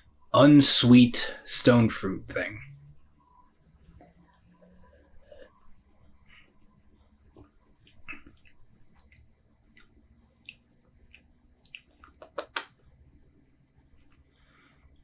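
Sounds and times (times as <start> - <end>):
mouth clicks and wet smacks: 7.4 - 12.8.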